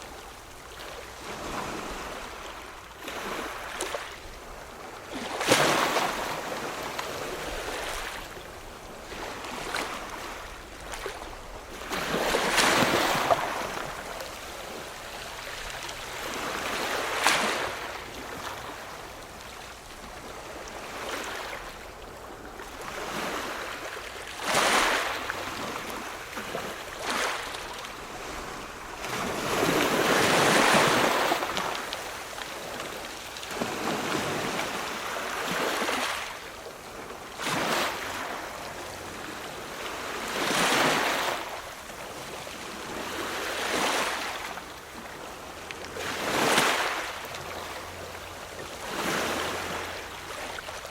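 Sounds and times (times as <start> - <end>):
ocean waves breaking on shore: 0.0 - 50.9.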